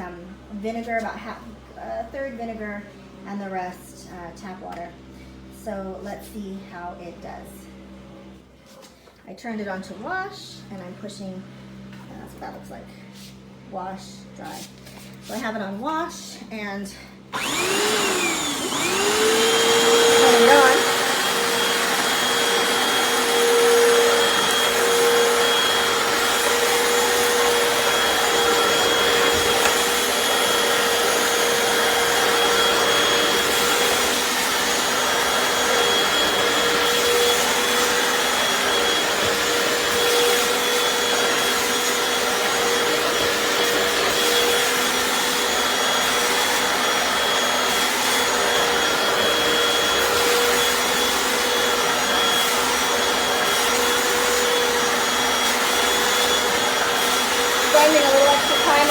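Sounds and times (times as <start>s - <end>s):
floor cleaner motor whining: 17.3s - 58.9s.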